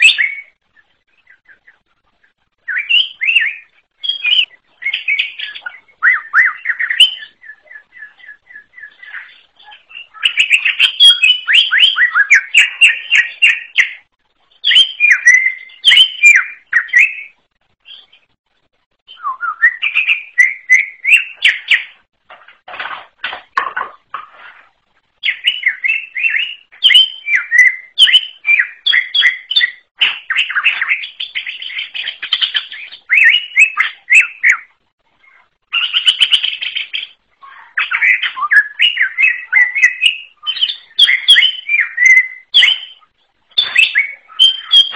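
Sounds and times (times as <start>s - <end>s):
bird singing chattering phrases: 25.2s - 44.9s.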